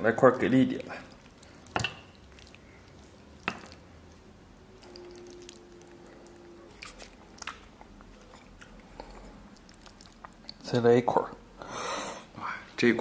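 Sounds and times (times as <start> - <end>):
chewing soft meat: 0.8 - 10.7.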